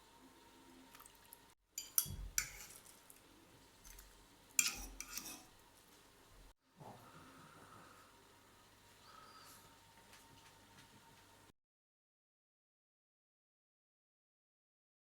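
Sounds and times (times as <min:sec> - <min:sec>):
cutlery clinking on plates: 0:01.8 - 0:02.9, 0:04.6 - 0:05.5.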